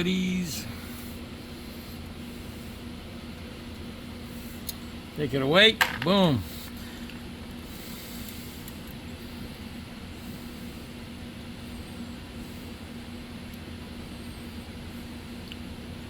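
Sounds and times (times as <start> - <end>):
background hum and hiss: 0.0 - 16.0.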